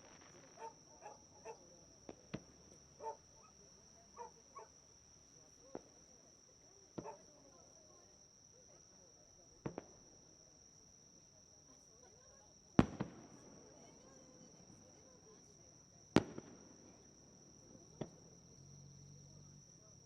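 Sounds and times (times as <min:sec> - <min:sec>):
fireworks bursting with sharp bangs: 0:00.0 - 0:03.2, 0:05.7 - 0:06.1, 0:06.9 - 0:07.3, 0:09.6 - 0:10.1, 0:12.7 - 0:14.9, 0:16.1 - 0:18.3
insects chirring: 0:00.0 - 0:20.0.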